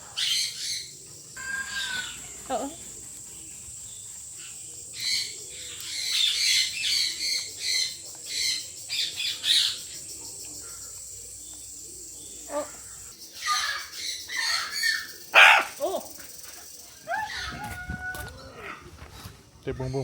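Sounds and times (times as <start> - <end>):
birds squawking: 0.0 - 4.0, 12.2 - 16.2.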